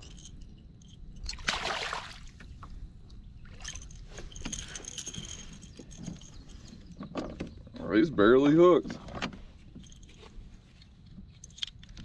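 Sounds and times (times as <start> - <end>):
fish splashing at the surface: 1.4 - 2.4.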